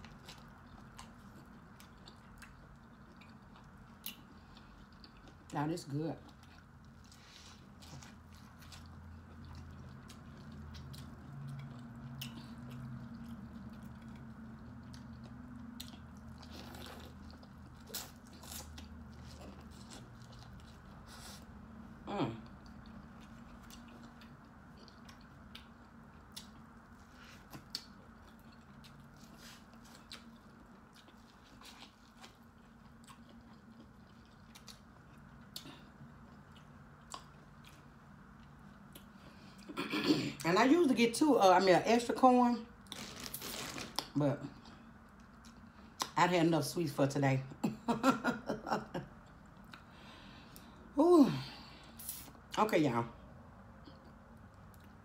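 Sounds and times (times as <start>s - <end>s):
chewing corn on the cob: 0.0s - 39.2s
low steady hum: 0.0s - 55.0s.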